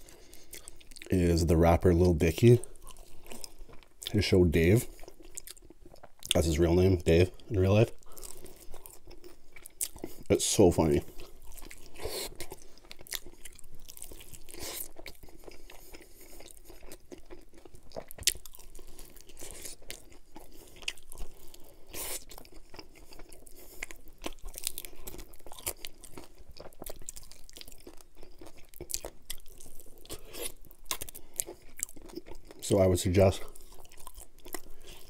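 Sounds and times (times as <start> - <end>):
crunchy fried chicken chewing: 0.0 - 35.0.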